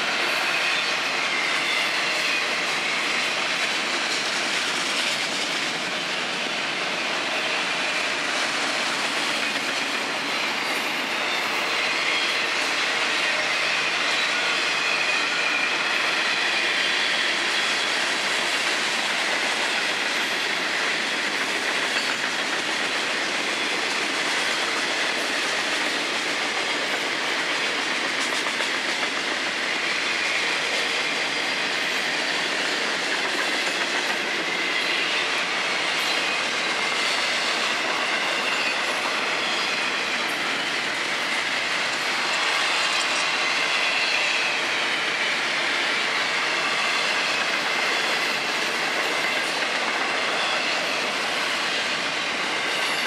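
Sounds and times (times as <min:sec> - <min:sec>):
high wheel squeal: 0:00.1 - 0:03.6, 0:06.5 - 0:18.3, 0:34.2 - 0:53.0.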